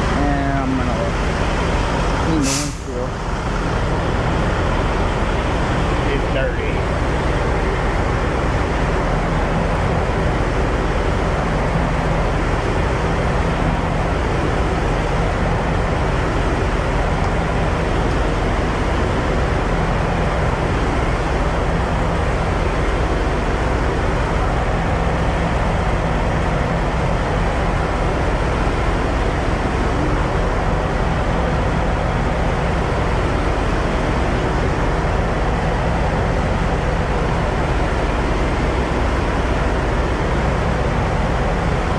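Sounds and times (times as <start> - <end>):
diesel truck engine humming: 0.0 - 41.9
steady noise: 0.0 - 41.9.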